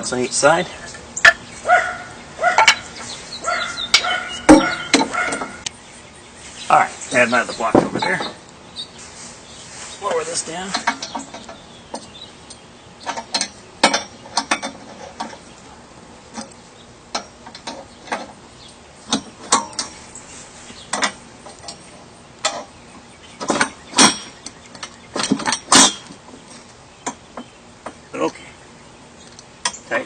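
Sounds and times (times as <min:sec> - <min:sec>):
metallic clicks and knocks: 0:10.7 - 0:15.4.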